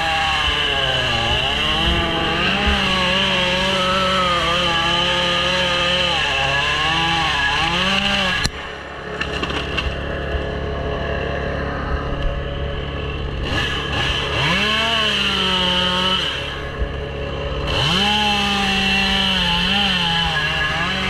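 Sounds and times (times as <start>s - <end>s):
chainsaw cutting wood: 0.0s - 21.0s
quieter engine running: 6.7s - 21.0s.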